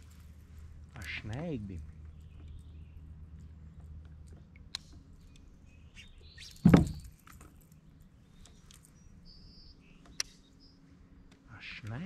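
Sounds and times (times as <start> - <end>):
small birds chirping: 0.0 - 12.0
loud short thump: 6.6 - 7.1.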